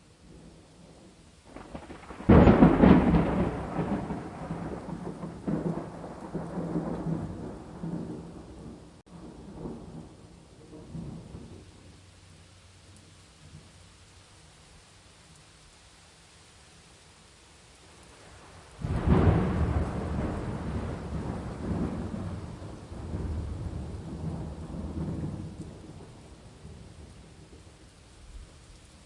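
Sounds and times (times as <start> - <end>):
faint rain hiss: 0.0 - 29.0
thunder rumbling: 0.3 - 12.0, 18.2 - 28.6.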